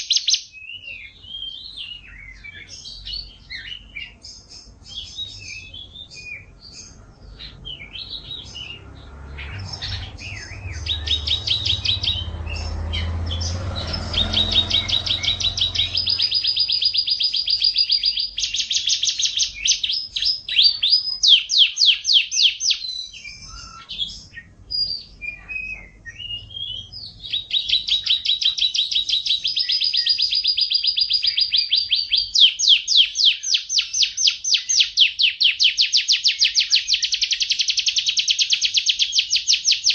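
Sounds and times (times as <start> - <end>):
canary singing trills: 0.0 - 39.9
low rumble: 7.0 - 17.0.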